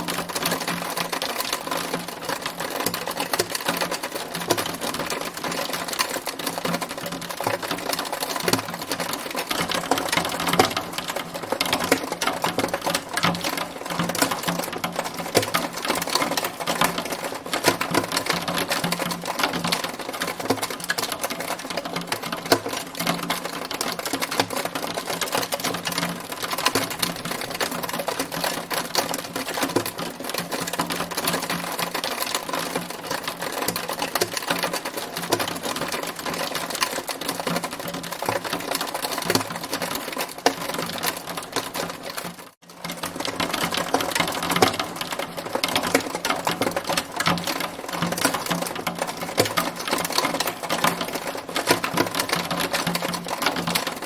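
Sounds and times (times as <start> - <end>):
hailstones pelting hard surface: 0.0 - 54.0.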